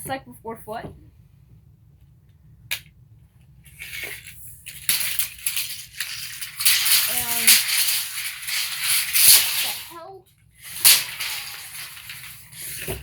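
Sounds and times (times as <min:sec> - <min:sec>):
tape measure blade scraping and rattling: 0:03.7 - 0:10.0, 0:10.6 - 0:13.0.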